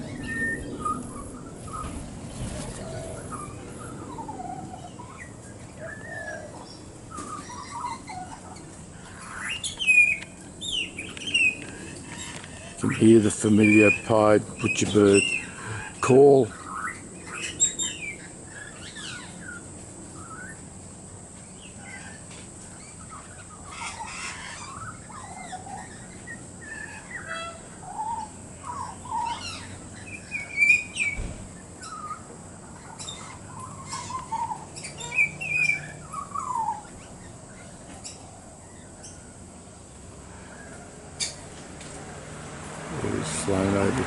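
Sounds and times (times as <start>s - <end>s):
young bird warbling: 0.0s - 20.6s, 21.6s - 39.5s.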